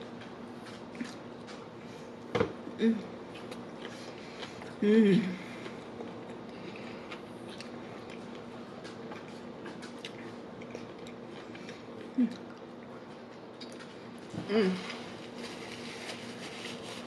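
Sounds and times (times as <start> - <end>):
person chewing: 0.6 - 1.7, 5.5 - 14.3.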